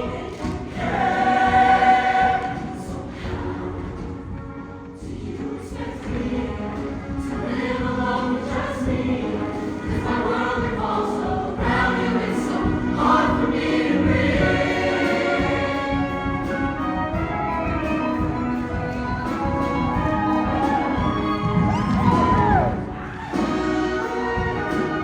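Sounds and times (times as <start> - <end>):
choir singing: 0.0 - 25.0
live band playing: 15.1 - 25.0.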